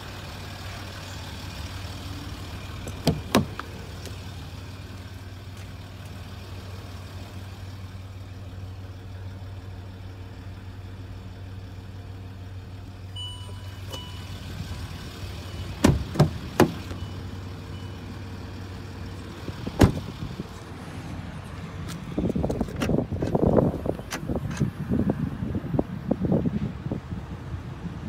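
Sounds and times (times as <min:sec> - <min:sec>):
car engine idling: 0:00.0 - 0:26.2
warning chime beeping: 0:13.2 - 0:14.6.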